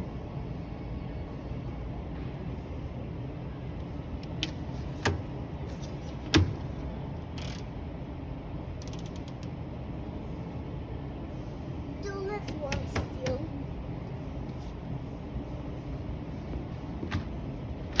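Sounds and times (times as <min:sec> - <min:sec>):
shop background noise: 0:01.0 - 0:18.0
washing machine door clicks and knocks: 0:04.4 - 0:05.3, 0:06.2 - 0:06.8, 0:12.5 - 0:13.4, 0:17.0 - 0:18.0.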